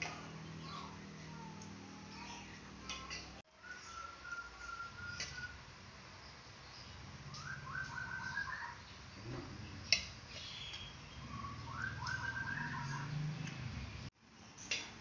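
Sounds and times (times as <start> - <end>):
bird calling: 2.2 - 5.6, 7.3 - 8.9, 9.8 - 13.4.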